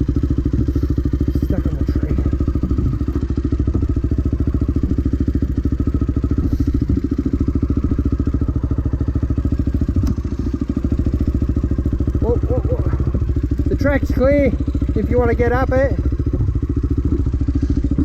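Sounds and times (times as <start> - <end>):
dirt bike engine idling: 0.0 - 18.0.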